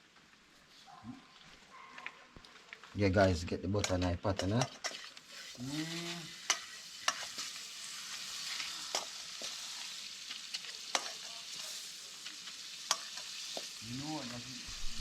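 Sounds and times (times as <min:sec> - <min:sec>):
hot oil sizzling: 0:02.4 - 0:15.0.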